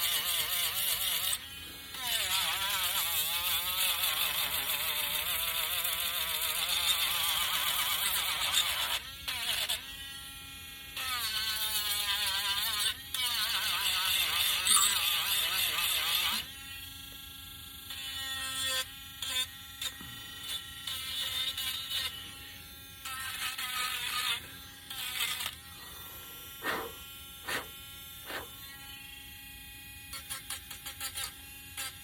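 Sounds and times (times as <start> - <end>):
sander scratching wood: 23.0 - 28.9.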